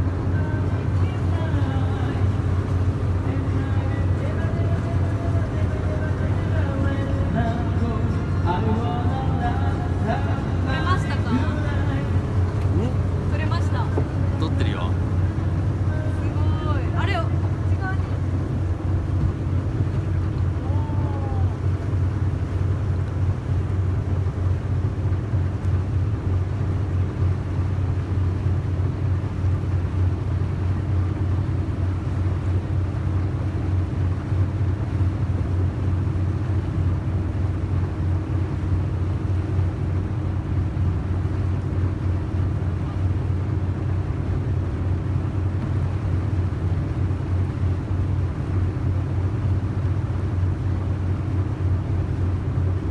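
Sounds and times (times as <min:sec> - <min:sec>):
boat engine droning: 0:00.0 - 0:52.9.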